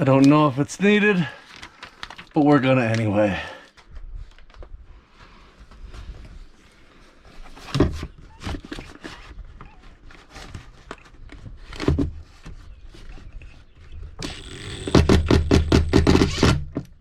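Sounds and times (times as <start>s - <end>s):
heavy thumps: 14.2s - 16.7s.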